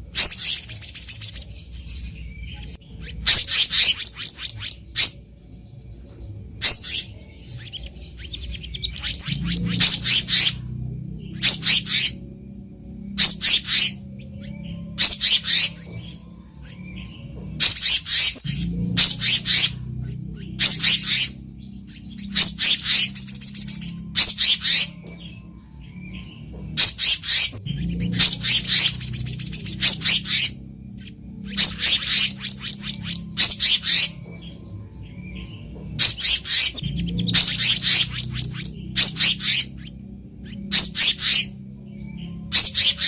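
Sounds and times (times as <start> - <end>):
bird calling high sharp notes: 0.0 - 5.3, 6.6 - 12.4, 13.0 - 43.0
low steady hum: 0.0 - 43.0.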